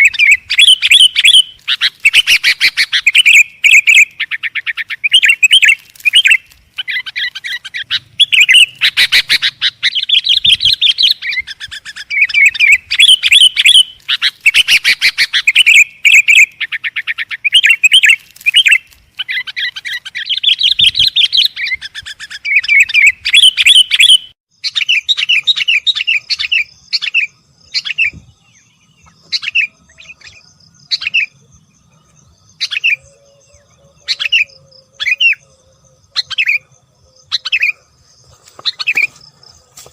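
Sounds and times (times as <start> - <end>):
bulbuls chirping: 0.0 - 39.9.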